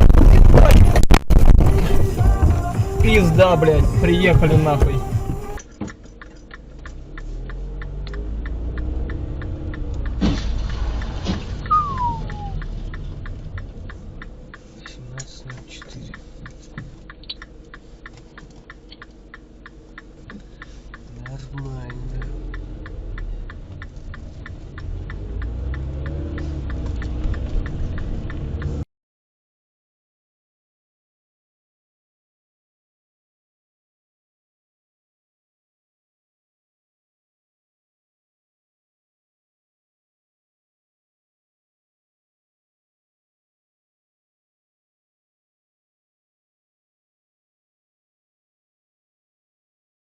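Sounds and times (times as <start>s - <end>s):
car engine rumbling: 0.0s - 28.9s
short evenly spaced ticks: 5.6s - 11.7s, 12.4s - 28.8s
falling whistle-like tone: 11.6s - 12.9s.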